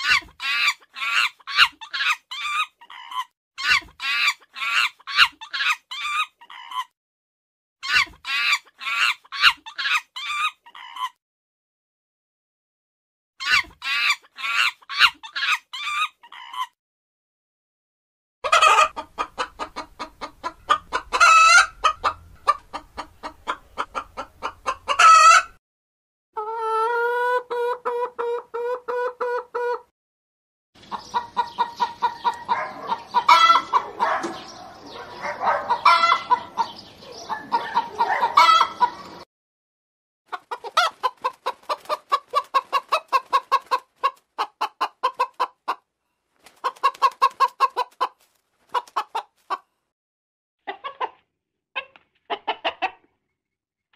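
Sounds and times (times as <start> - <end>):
chicken squawks: 0.0 - 6.9, 7.8 - 11.2, 13.4 - 16.8, 18.4 - 25.6, 26.4 - 29.9, 30.9 - 39.2, 40.3 - 45.8, 46.5 - 49.6, 51.8 - 53.0
chickens clucking: 0.0 - 6.9, 7.9 - 11.2, 13.5 - 16.8, 18.4 - 25.6, 26.4 - 29.9, 30.8 - 39.3, 40.3 - 45.8, 46.4 - 49.7, 50.6 - 51.2, 51.8 - 53.2.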